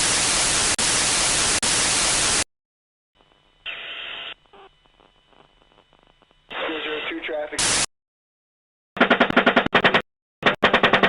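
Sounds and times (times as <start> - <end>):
loud white-noise static: 0.0 - 2.4, 3.2 - 7.9
muffled radio hiss: 3.2 - 7.9.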